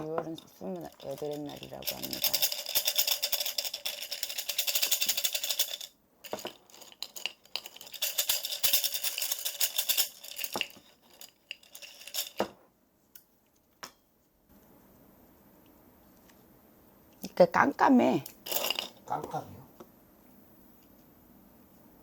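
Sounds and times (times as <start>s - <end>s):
small hard objects rattling: 0.0s - 12.5s.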